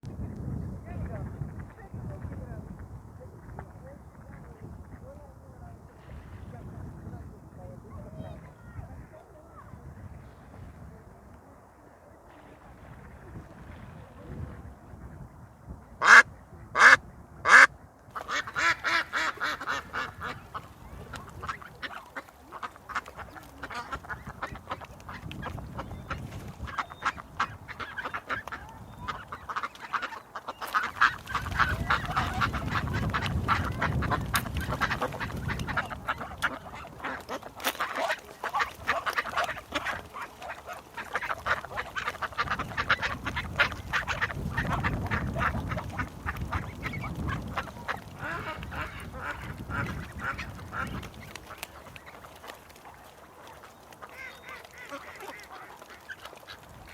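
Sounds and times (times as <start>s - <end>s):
ducks quacking: 15.9s - 56.9s.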